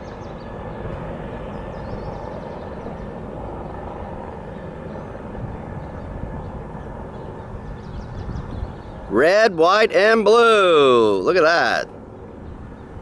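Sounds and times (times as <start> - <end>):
helicopter rotors and engines: 0.0 - 13.0.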